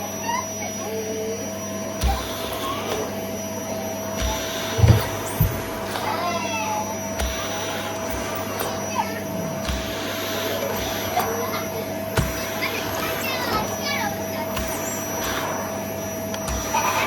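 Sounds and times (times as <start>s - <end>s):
vacuum cleaner running: 0.0s - 17.0s
short low thumps: 4.8s - 5.8s.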